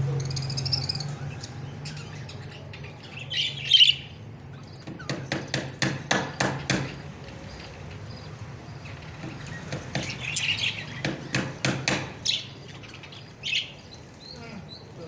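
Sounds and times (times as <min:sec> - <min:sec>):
sharp knocks: 0:04.8 - 0:07.2, 0:09.2 - 0:12.4.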